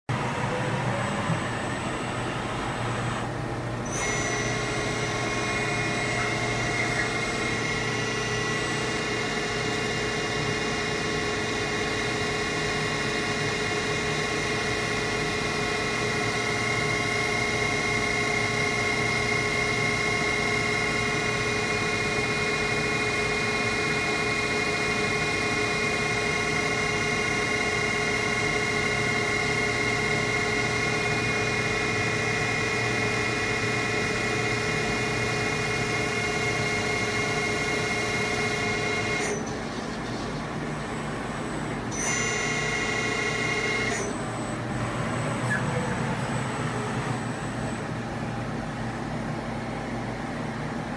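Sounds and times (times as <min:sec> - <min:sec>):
machine hum: 0:00.1 - 0:50.9
steady high whining tones: 0:25.8 - 0:50.9.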